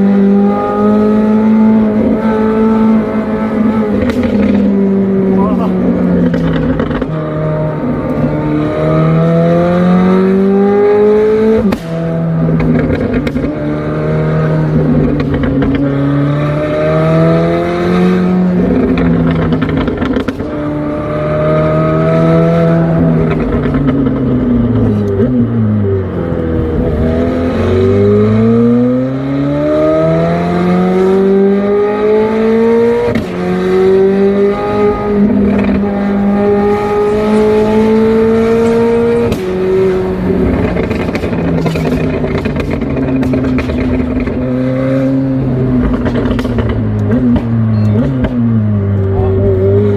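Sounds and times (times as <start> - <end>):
car engine accelerating through gears: 0.0 - 49.9
exhaust cracks on gear shifts: 40.4 - 44.5.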